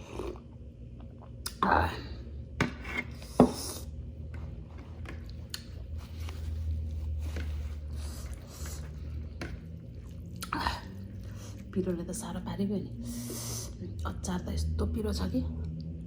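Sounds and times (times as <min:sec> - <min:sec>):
chewing food: 0:04.2 - 0:11.8.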